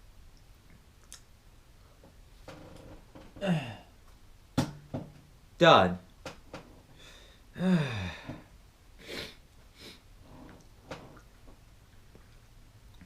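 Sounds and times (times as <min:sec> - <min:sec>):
man groaning: 0:03.4 - 0:03.9, 0:07.6 - 0:08.4
man breathing heavily: 0:06.9 - 0:10.0.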